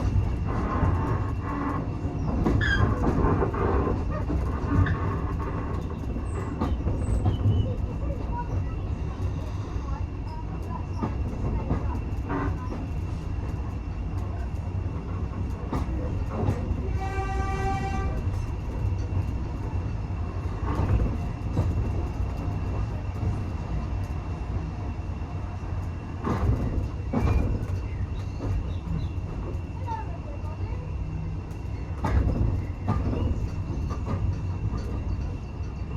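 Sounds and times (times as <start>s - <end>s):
train carriage rumbling on track: 0.0s - 35.9s
locomotive whistle: 17.0s - 18.2s.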